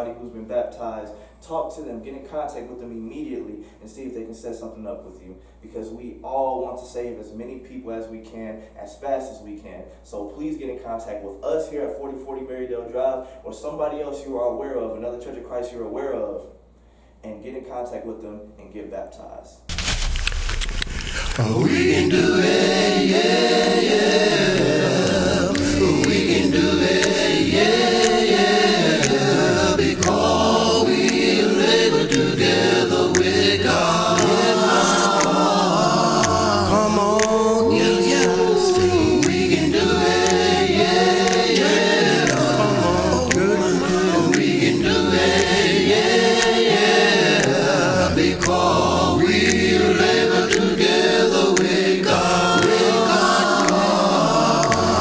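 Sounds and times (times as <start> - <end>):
choir singing in harmony: 21.1 - 55.0.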